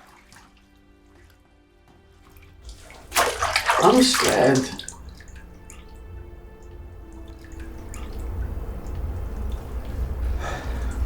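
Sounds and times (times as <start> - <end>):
water dripping: 2.3 - 11.0
low rumble: 5.0 - 11.0.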